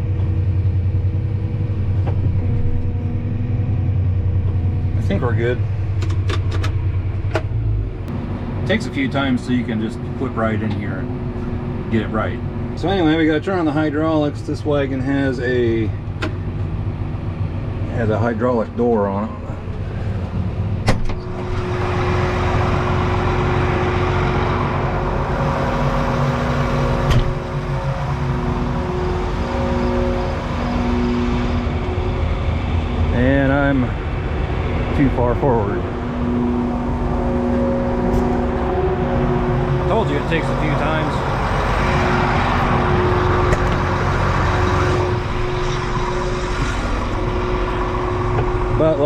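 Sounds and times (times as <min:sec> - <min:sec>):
tractor engine droning: 0:00.0 - 0:49.0.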